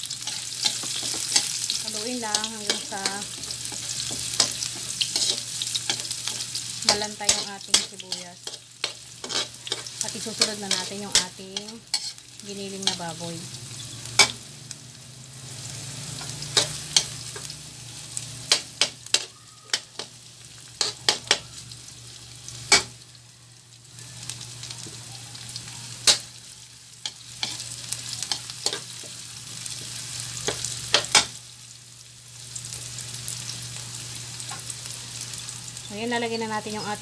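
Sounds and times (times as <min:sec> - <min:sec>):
onion sizzling in hot oil: 0:00.0 - 0:37.0
metal spatula scraping a pan: 0:02.4 - 0:12.2.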